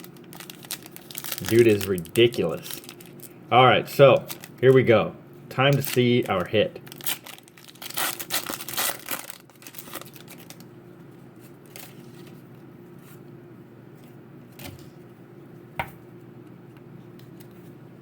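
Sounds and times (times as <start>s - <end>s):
foil pack tearing and crinkling: 0.0s - 3.3s, 4.2s - 4.6s, 5.7s - 10.7s, 11.6s - 12.4s
steady low hum: 0.0s - 18.0s.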